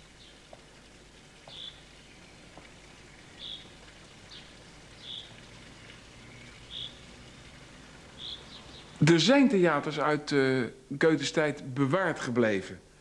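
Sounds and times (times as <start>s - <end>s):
faint outdoor hiss: 0.0s - 13.0s
small bird chirping: 1.5s - 2.4s, 3.2s - 7.0s, 8.2s - 9.0s.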